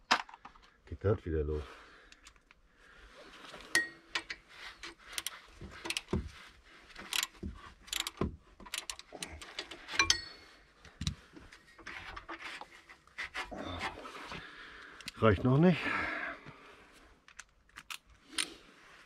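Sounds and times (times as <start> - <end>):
wrench clinking on metal parts: 3.7 - 6.2, 7.0 - 10.6.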